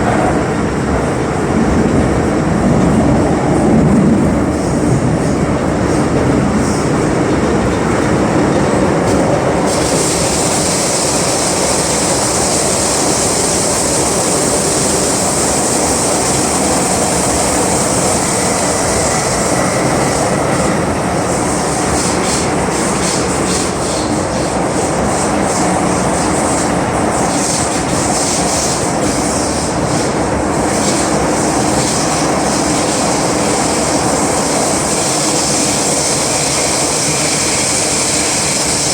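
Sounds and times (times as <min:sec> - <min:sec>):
metro wheels rumbling on rail: 0:00.0 - 0:38.9
high hiss: 0:08.7 - 0:38.9.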